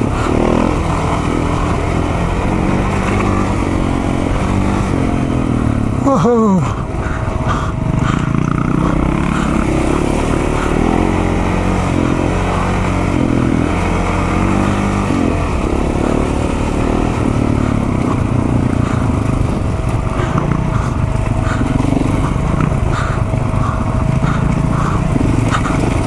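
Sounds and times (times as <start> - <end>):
motorcycle engine revving: 0.0 - 26.0
wind and riding noise: 0.0 - 26.0.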